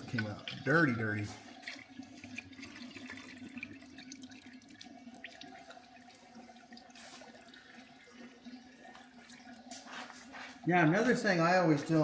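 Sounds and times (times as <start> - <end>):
oil pouring into drain pan: 0.0 - 11.0.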